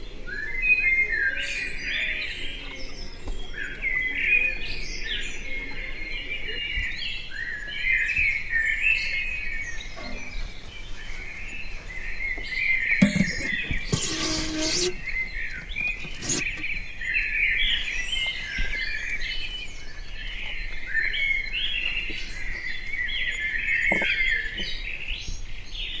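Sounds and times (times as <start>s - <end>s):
brief rustling: 10.0s - 16.9s.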